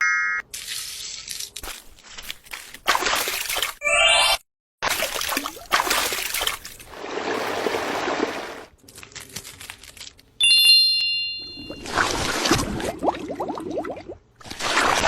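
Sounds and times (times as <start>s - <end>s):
water splashing and trickling: 2.5s - 3.8s, 4.8s - 8.8s
bright ringing tone: 10.4s - 11.9s.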